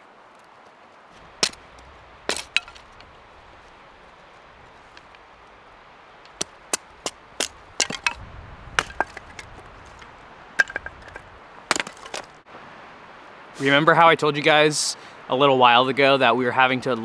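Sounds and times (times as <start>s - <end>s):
sharp short knocks and cracks: 1.2s - 5.5s, 6.2s - 12.4s.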